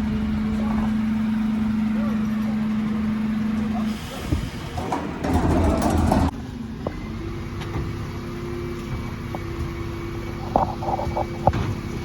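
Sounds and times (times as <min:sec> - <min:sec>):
loud rushing mechanical noise: 0:03.8 - 0:06.8.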